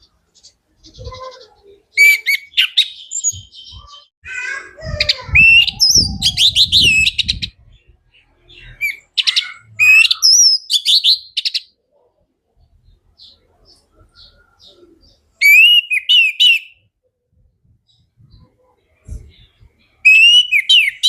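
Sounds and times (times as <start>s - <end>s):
thrush singing whistles and trills: 1.9s - 4.1s, 5.2s - 7.8s, 8.5s - 11.7s, 15.4s - 16.8s, 19.8s - 21.0s.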